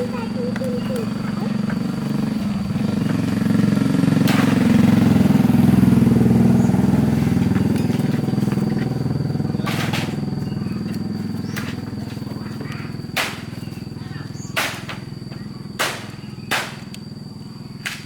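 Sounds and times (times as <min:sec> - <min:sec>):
motorcycle engine running: 0:00.0 - 0:17.8.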